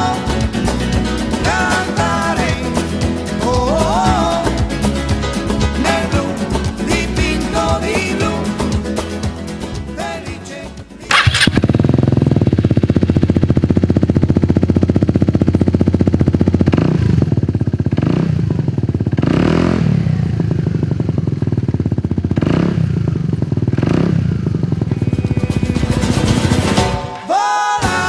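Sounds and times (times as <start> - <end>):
scooter throttle blips: 11.1 - 16.4
scooter exhaust idling: 11.1 - 26.8.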